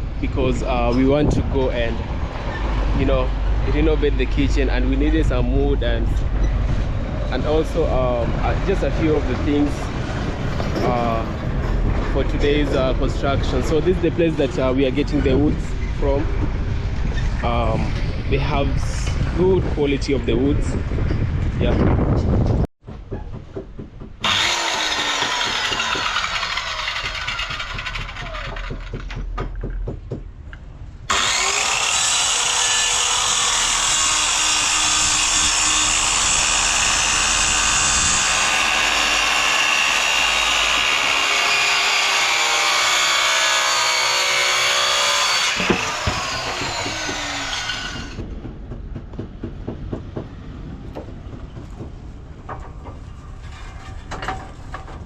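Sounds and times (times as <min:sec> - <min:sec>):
power saw cutting timber: 0:07.4 - 0:15.5, 0:24.2 - 0:29.2, 0:31.1 - 0:48.3.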